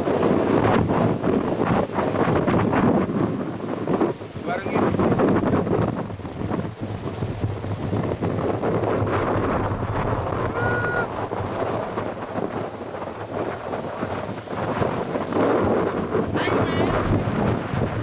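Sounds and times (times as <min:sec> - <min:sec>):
strong wind buffeting microphone: 0:00.0 - 0:18.0
short high-pitched tone: 0:10.5 - 0:11.1.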